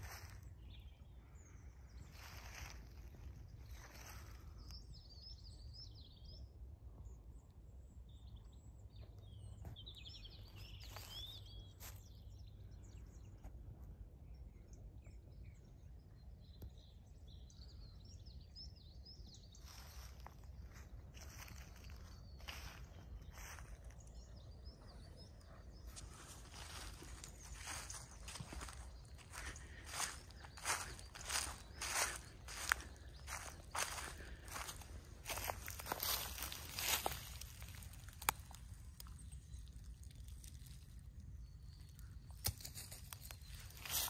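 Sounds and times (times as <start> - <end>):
songbirds twittering: 0.0 - 44.0
footsteps on grass: 2.1 - 4.5, 19.6 - 24.1, 25.3 - 39.2, 42.3 - 44.0.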